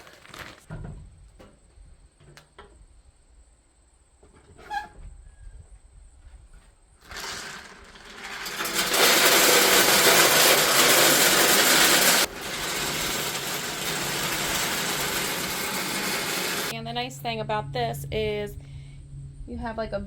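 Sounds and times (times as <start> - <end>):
pellets pouring into hopper: 0.0 - 0.7, 7.0 - 16.7.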